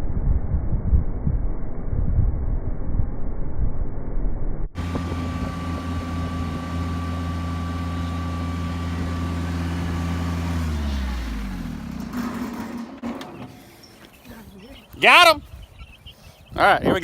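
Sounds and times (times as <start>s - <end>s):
vehicle engine idling: 4.8s - 15.3s.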